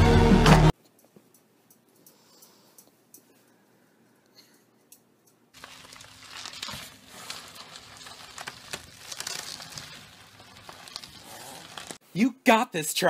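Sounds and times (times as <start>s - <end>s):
bubble wrap crinkling: 5.6s - 12.0s.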